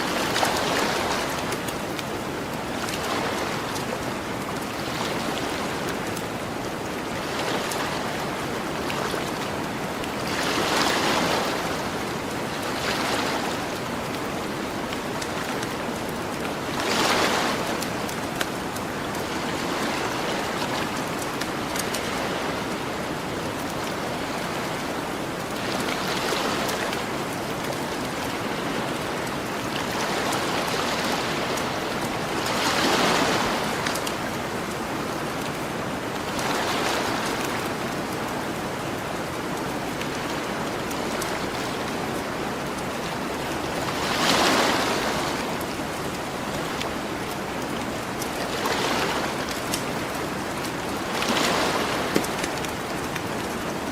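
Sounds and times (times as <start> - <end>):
ocean waves on a beach: 0.0 - 53.9
campfire crackling: 0.2 - 3.1, 17.6 - 25.6.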